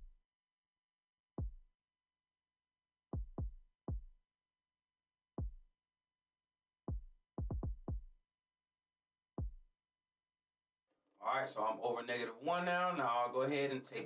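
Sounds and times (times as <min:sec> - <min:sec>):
electronic kick drum thumps: 0:01.4 - 0:01.7, 0:03.2 - 0:04.1, 0:05.4 - 0:05.7, 0:06.9 - 0:08.2, 0:09.4 - 0:09.7.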